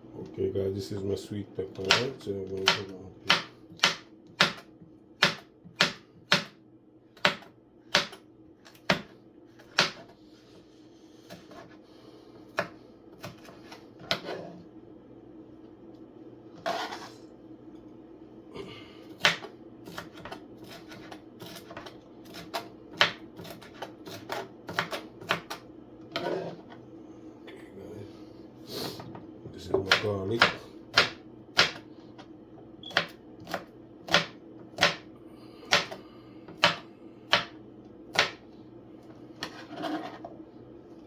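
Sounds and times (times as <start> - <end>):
knife chopping on cutting board: 1.8 - 6.6, 7.2 - 10.1, 12.5 - 14.6, 19.2 - 26.6, 29.7 - 31.9, 32.9 - 35.1, 35.7 - 38.4.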